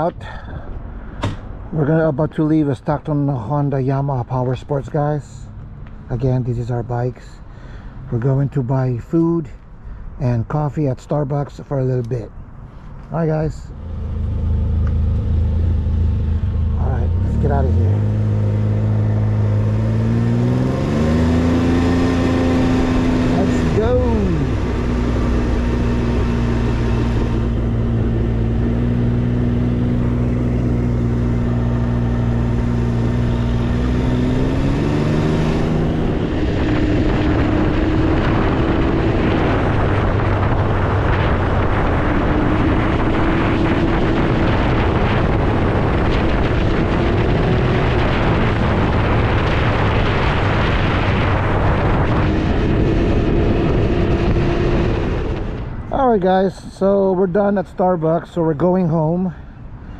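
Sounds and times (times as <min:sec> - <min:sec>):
wind rush on microphone: 0:13.3 - 0:58.6
motorcycle engine accelerating: 0:13.4 - 0:57.4.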